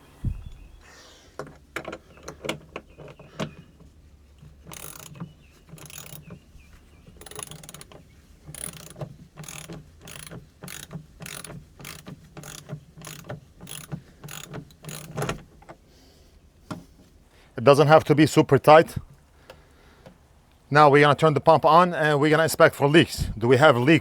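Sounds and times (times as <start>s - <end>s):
ratcheting clicks: 4.5s - 6.4s, 7.0s - 15.5s.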